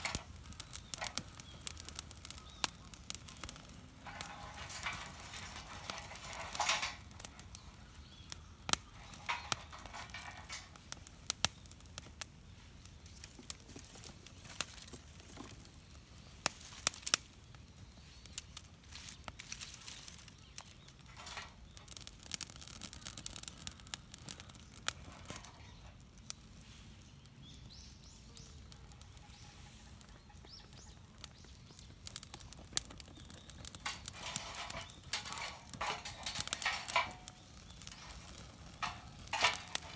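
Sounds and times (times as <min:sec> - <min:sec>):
campfire crackling and popping: 0:00.0 - 0:39.9
rustling: 0:03.2 - 0:07.7, 0:12.5 - 0:17.3, 0:18.2 - 0:22.0, 0:32.3 - 0:39.9.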